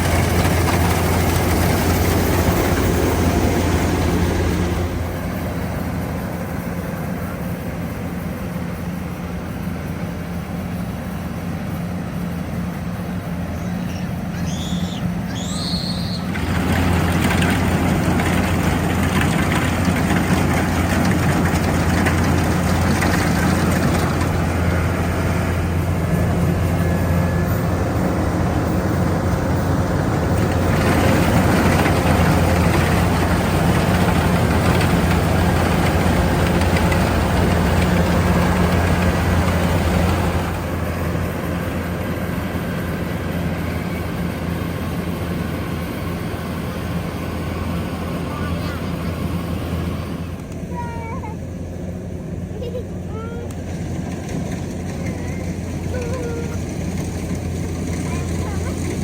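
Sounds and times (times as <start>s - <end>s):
combine harvester engine humming: 0.0s - 59.0s
clatter of cutting and threshing: 16.2s - 40.8s, 52.7s - 59.0s.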